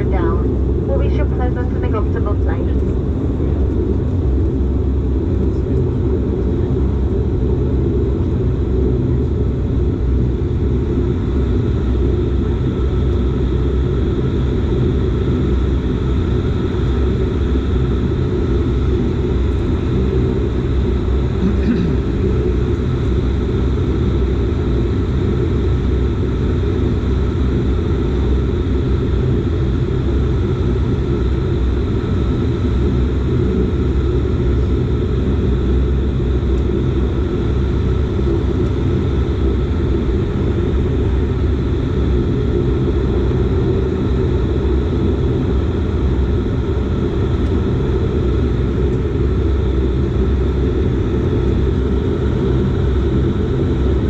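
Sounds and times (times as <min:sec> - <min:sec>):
turboprop engines rumbling: 0:00.0 - 0:54.0.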